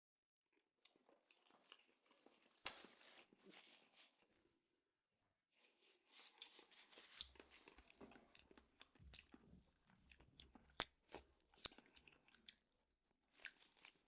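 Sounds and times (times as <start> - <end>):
chewing and crunching beans: 0.5 - 4.5, 5.6 - 14.0.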